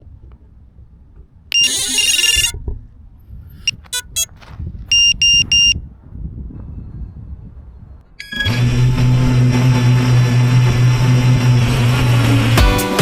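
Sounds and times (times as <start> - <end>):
high-pitched buzzer beeping: 1.6 - 2.5, 3.7 - 4.3, 4.9 - 5.8.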